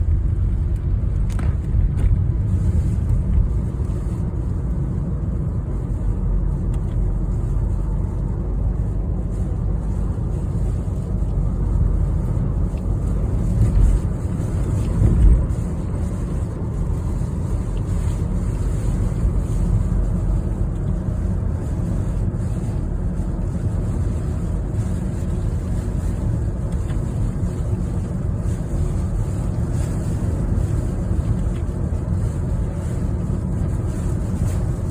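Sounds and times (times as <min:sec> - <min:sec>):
car driving on highway: 0:00.0 - 0:34.9
strong wind: 0:12.6 - 0:18.4.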